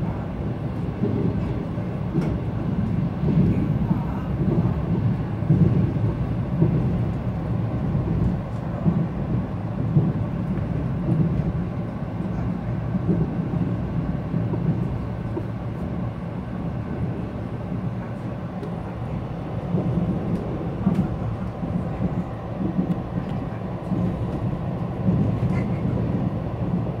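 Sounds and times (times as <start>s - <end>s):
train rumbling on rails: 0.0s - 27.0s
faint clicks of train wheels: 0.2s - 27.0s.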